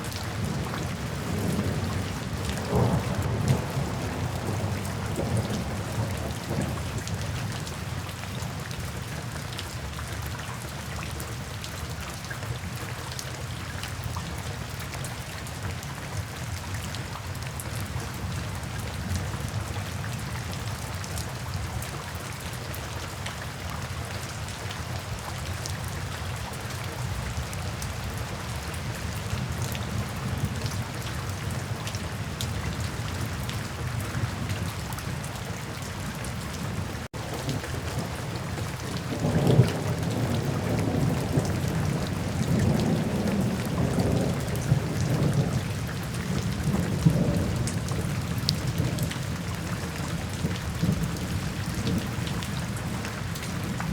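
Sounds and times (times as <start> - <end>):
rain falling: 0.0 - 53.9
rolling thunder: 0.3 - 6.9, 36.6 - 49.1.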